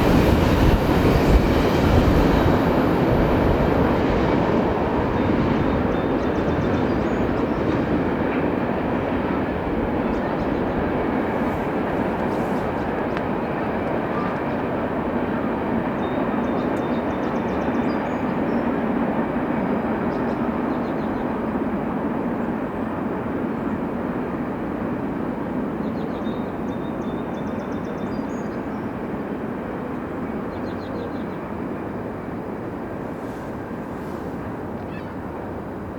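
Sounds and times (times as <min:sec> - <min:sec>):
freight train wheels clattering on rails: 0:00.0 - 0:15.0.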